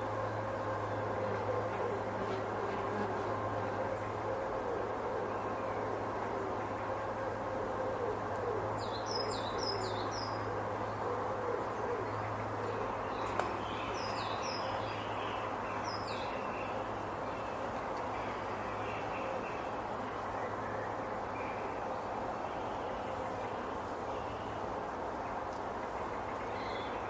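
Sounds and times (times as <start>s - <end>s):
breeze through trees: 0.0s - 27.0s.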